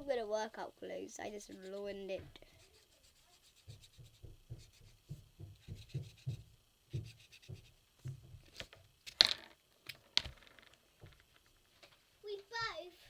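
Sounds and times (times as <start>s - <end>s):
pen scribbling on paper: 1.4s - 2.0s, 2.6s - 6.4s, 7.0s - 7.8s.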